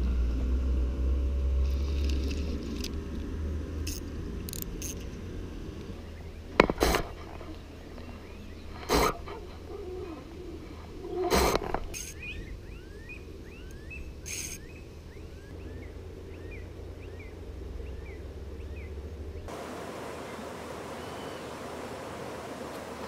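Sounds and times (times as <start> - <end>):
rustle: 0.0 - 23.0
steady outdoor hiss: 0.0 - 23.0
small birds chirping: 5.9 - 21.8.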